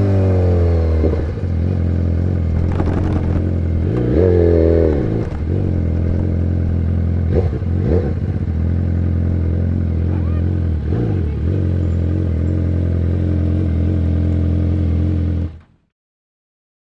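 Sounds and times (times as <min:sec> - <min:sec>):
motorcycle engine idling: 0:01.8 - 0:04.1, 0:05.0 - 0:14.4
motorcycle throttle blips: 0:02.3 - 0:13.2.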